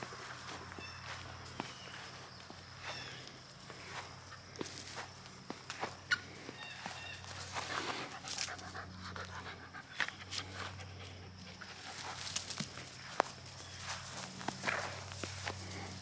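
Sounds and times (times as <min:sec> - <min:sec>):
ticking footsteps: 0:00.0 - 0:16.0
dog panting: 0:07.6 - 0:12.3.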